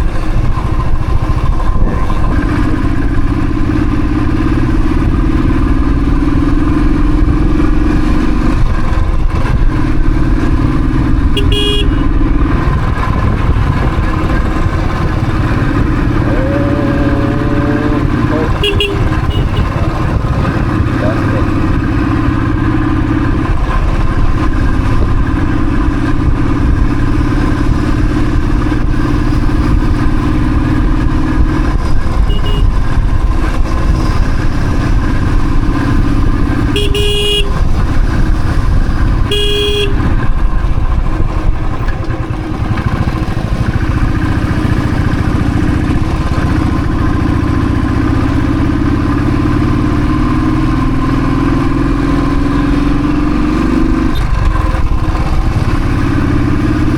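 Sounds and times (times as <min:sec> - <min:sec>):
motorcycle engine running: 0:00.0 - 0:56.9
vehicle horn honks: 0:11.4 - 0:12.2, 0:16.2 - 0:20.2, 0:32.2 - 0:32.8, 0:36.7 - 0:37.7, 0:39.3 - 0:40.1.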